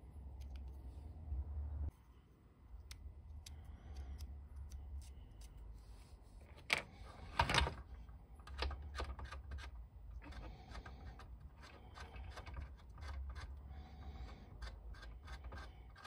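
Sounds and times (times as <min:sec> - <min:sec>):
plastic parts clicking and tapping: 0:06.5 - 0:16.0.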